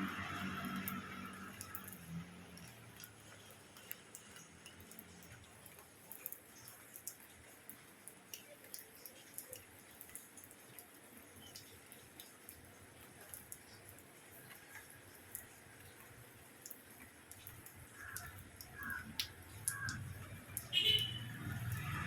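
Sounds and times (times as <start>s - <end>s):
passing vehicle hum: 0.0s - 3.2s, 21.2s - 22.0s
rain dripping: 0.0s - 22.0s.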